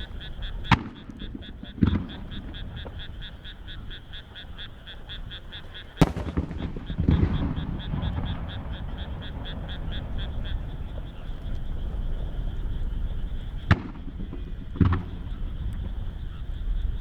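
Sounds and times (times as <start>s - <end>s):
firework bang: 6.0s - 10.6s.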